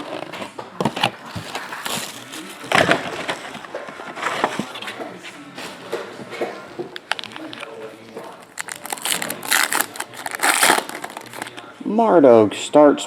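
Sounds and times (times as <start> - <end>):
cardboard rustling: 0.0 - 5.0, 7.1 - 11.6
wrapper crinkling: 7.1 - 11.6
sharp tearing noises: 8.4 - 11.6.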